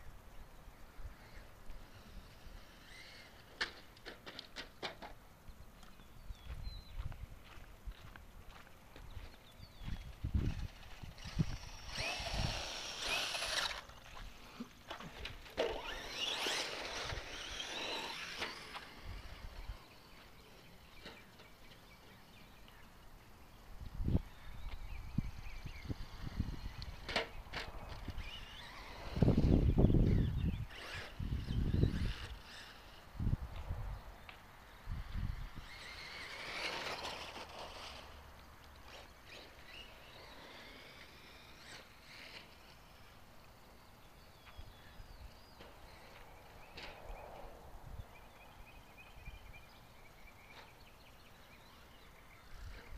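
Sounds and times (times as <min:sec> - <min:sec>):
rc truck motor whining: 0:01.1 - 0:05.0, 0:10.0 - 0:22.4, 0:24.5 - 0:33.4, 0:34.7 - 0:47.0.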